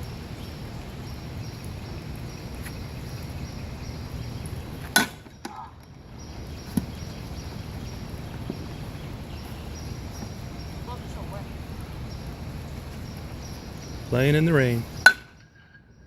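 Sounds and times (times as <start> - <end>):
rain hissing: 0.0 - 15.3
bat cracking a baseball: 4.8 - 5.9, 15.0 - 15.7.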